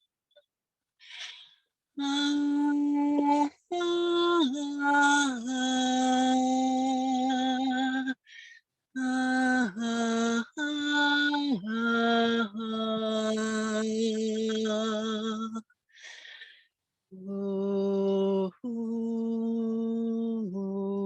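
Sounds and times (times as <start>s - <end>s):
person breathing: 1.0s - 1.7s, 8.2s - 8.6s, 15.9s - 16.7s.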